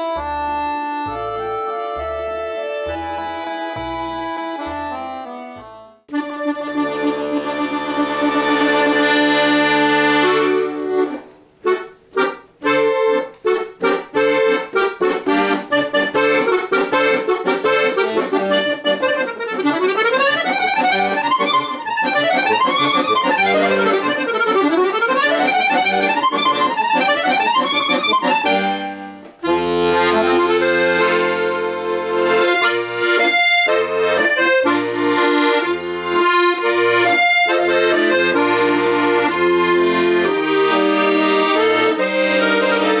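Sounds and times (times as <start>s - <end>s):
accordion playing folk music: 0.0s - 43.0s.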